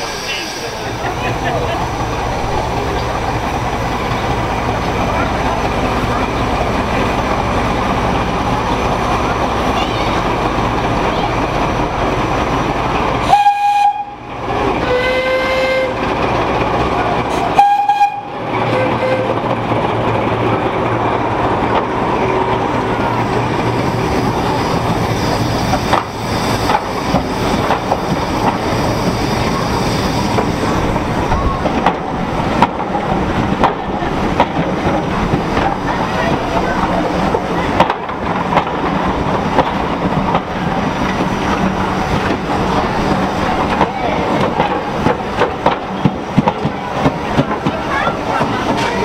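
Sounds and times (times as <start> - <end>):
passenger train rumbling past: 0.0 - 49.0
locomotive horn blasts: 13.2 - 14.2, 14.8 - 16.0, 17.5 - 19.4
wheels clicking over rail joints: 18.5 - 49.0.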